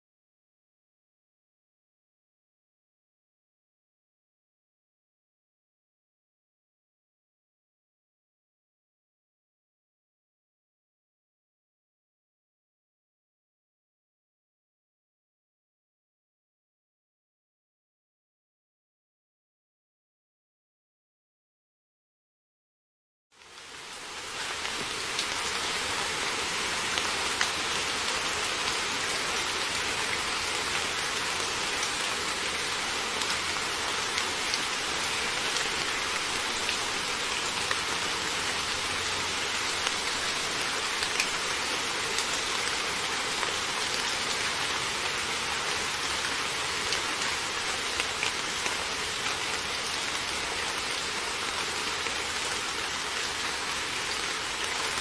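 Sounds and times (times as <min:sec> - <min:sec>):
heavy rain falling: 0:23.4 - 0:55.0.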